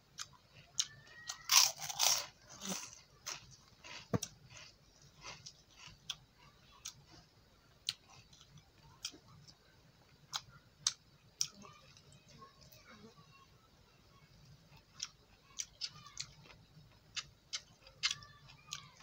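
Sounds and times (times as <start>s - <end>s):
quiet chewing: 0.0s - 13.2s, 14.3s - 19.0s.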